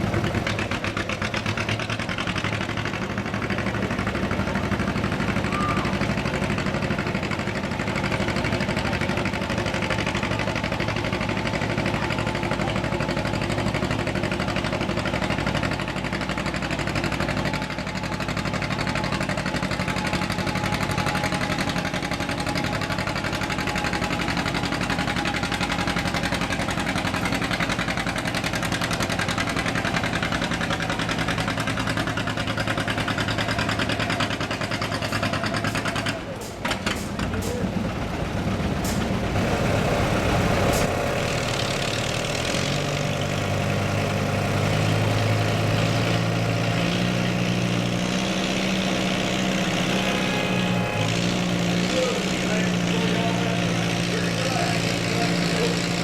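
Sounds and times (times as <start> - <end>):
tractor engine droning: 0.0 - 56.0.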